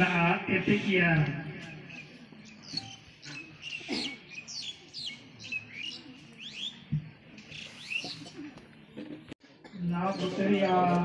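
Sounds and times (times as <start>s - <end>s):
small birds chirping: 1.8s - 9.0s.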